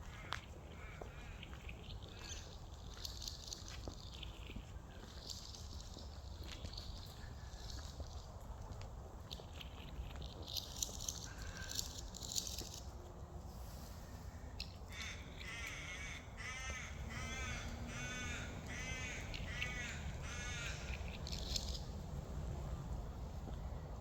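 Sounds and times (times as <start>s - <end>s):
bird calling: 13.7s - 21.8s.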